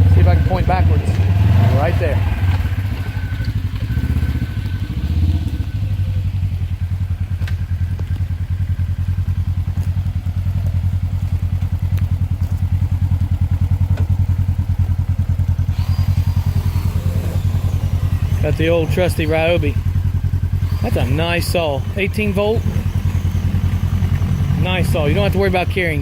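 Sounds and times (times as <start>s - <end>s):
engine idling: 0.0s - 26.0s
faint ticks: 9.7s - 14.5s.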